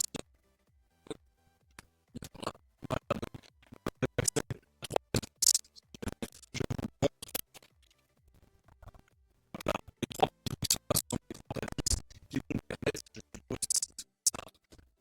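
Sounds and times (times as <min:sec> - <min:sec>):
hard objects clicking and knocking: 0:03.0 - 0:07.8, 0:10.0 - 0:14.6.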